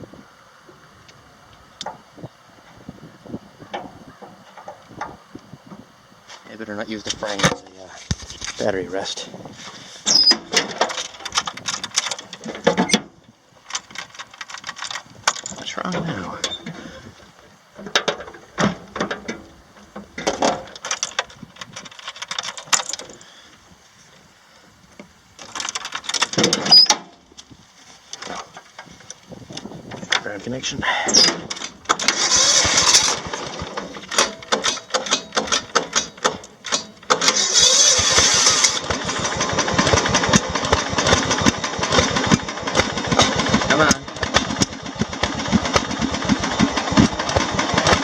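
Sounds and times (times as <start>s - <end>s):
engine cranking: 6.9s - 17.2s, 17.8s - 23.5s, 25.4s - 27.2s, 28.1s - 48.0s
metallic clicks and clatter of tools: 10.1s - 13.0s, 13.6s - 15.7s, 20.2s - 23.3s, 25.4s - 27.0s, 31.1s - 38.9s
engine running unevenly: 29.9s - 48.0s
engine clicks and sputters: 31.1s - 48.0s.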